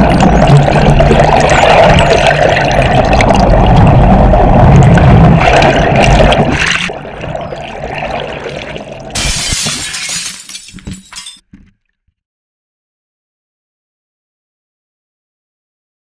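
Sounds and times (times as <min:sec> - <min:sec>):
underwater rush of water: 0:00.0 - 0:09.2.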